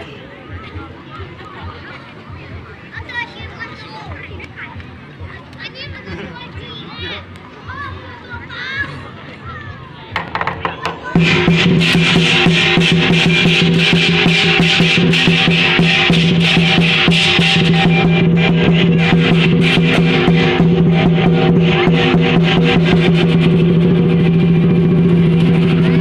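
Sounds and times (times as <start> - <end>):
drum beaten fast: 10.1 - 26.0
cymbals clashing: 10.6 - 26.0.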